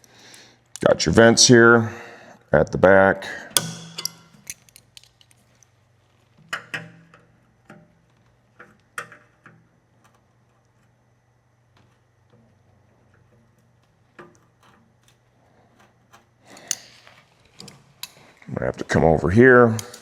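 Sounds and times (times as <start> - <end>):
faint steady hum: 0.0 - 20.0
clicks and knocks of hands working: 3.4 - 11.0, 11.8 - 19.0, 19.7 - 20.0.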